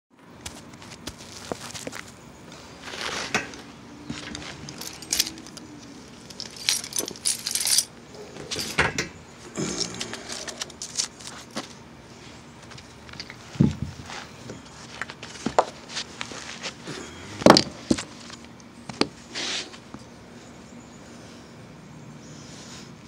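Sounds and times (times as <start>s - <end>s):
faint steady hum: 0.2s - 23.0s
metallic clinks and rattles: 4.2s - 8.8s, 9.8s - 11.4s.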